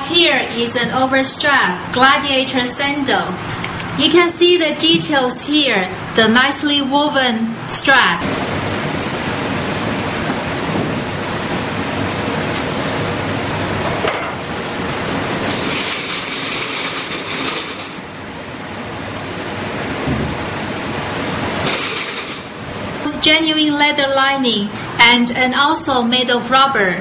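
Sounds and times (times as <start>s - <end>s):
steady rushing hiss: 8.2s - 23.0s.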